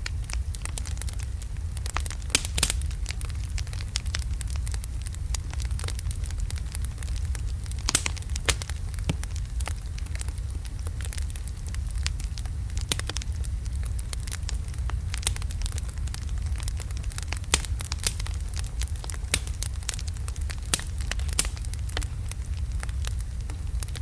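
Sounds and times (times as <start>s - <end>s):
low rumble of flames: 0.0s - 24.0s
wood crackling and popping: 0.0s - 24.0s.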